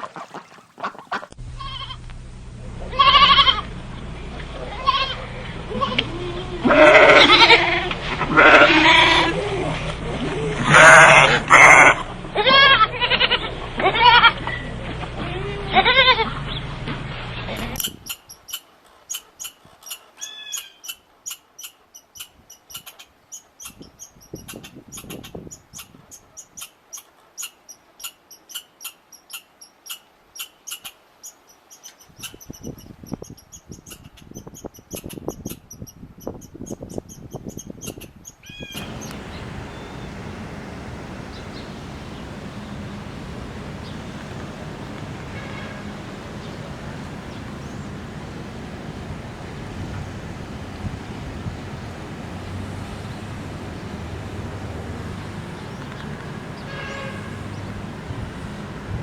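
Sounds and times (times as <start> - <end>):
low steady hum: 1.4 - 6.7, 38.8 - 59.0
animal bleating: 1.5 - 2.0, 2.8 - 3.7, 4.6 - 9.6, 10.6 - 14.5, 15.2 - 16.4
high chirps and ticks: 17.8 - 42.9.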